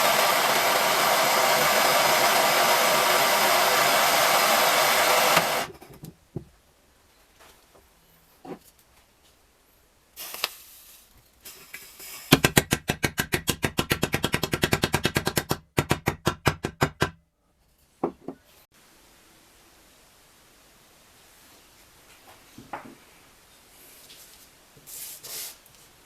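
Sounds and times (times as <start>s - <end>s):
hiss burst: 0.0s - 5.7s, 10.2s - 12.5s.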